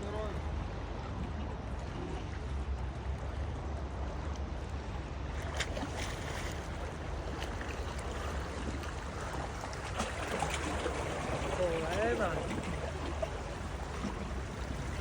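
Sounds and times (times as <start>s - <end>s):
sea water washing and splashing: 5.2s - 15.0s
short sharp splashes: 5.5s - 13.3s.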